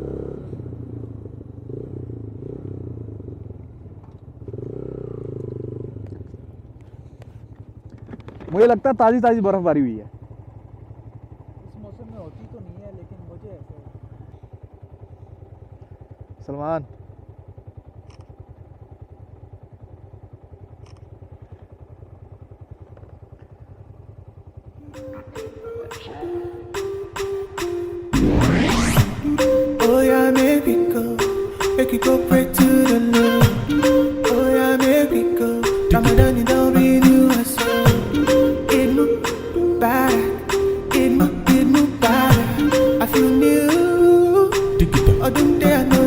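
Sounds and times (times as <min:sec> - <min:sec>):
motorcycle engine running: 0:00.0 - 0:25.4, 0:28.1 - 0:46.0
faint ticks: 0:05.3 - 0:08.5, 0:18.0 - 0:18.4, 0:20.8 - 0:21.7.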